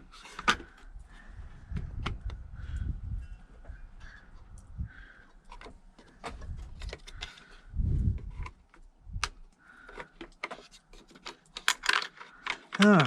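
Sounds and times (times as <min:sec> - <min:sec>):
metal tools clinking: 0:11.0 - 0:13.0.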